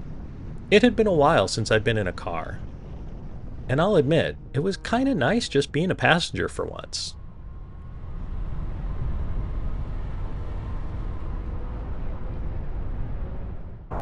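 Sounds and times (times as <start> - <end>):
faint steady hum: 0.0 - 14.0
road and engine rumble: 0.0 - 14.0.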